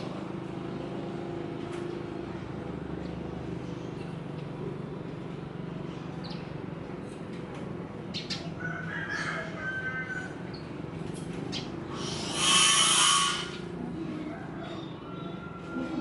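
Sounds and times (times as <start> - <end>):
birds chirping: 0.0 - 7.2, 7.9 - 16.0
low background hum: 0.0 - 16.0
drawn-out bird call: 11.5 - 13.8.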